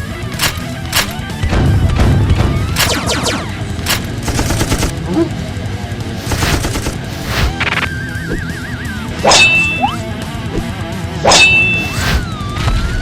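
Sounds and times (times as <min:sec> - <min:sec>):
background music: 0:00.0 - 0:13.0
rapid gunfire-like burst: 0:00.2 - 0:08.3
sharp impacts: 0:06.2 - 0:08.0, 0:09.2 - 0:12.3
warbling electronic tone: 0:09.2 - 0:10.0, 0:11.2 - 0:12.3.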